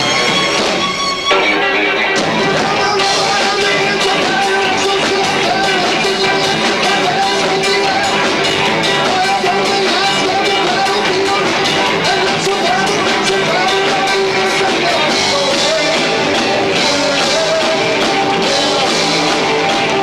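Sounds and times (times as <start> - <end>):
drums hitting: 0.0 - 20.0
live rock band: 0.0 - 20.0.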